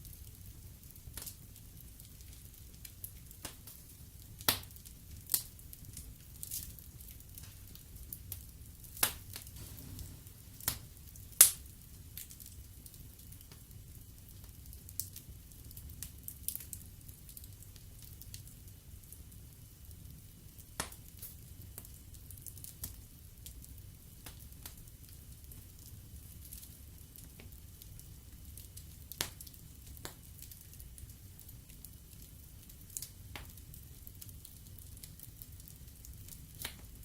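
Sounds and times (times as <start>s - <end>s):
wood fire crackling and popping: 0.0s - 37.0s
low steady rumble: 9.5s - 11.9s.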